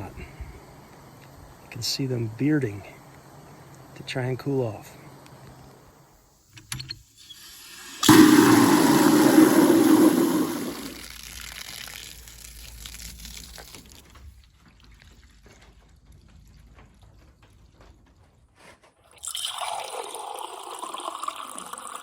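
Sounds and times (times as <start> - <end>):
water pouring and trickling: 7.2 - 18.2, 19.1 - 22.0
water dripping: 7.3 - 18.1.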